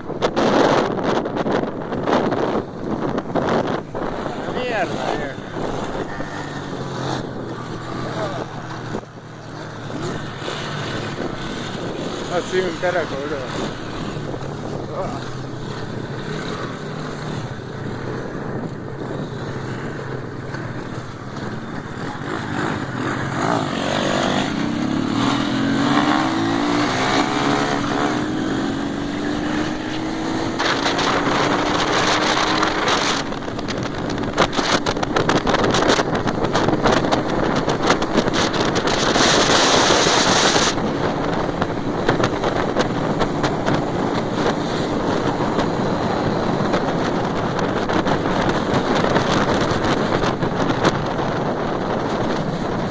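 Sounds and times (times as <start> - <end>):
motorcycle engine accelerating: 0.1 - 52.9.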